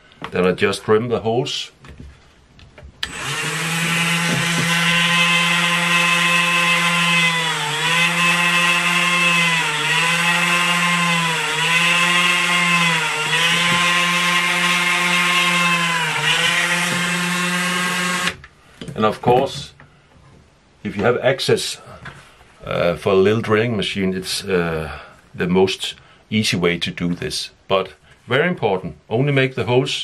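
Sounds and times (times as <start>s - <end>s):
rotary tool drilling leather: 3.0s - 18.4s.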